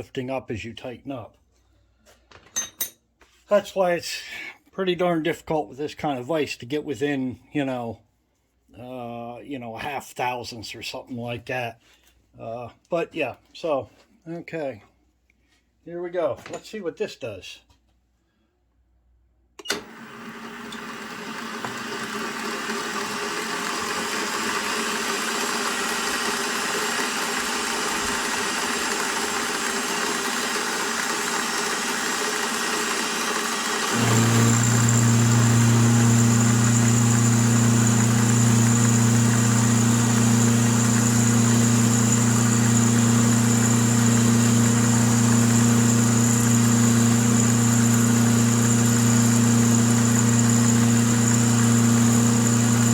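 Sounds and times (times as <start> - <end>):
milling machine motor spinning up: 19.7 - 52.9.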